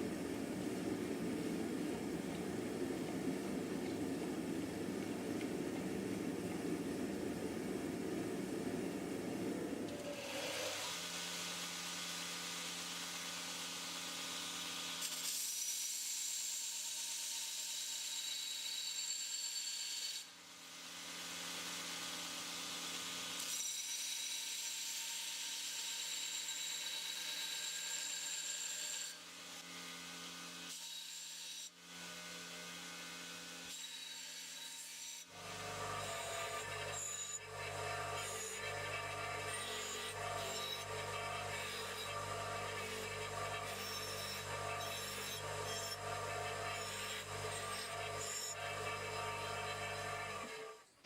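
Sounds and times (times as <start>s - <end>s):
electric grinder on metal: 10.0s - 51.0s.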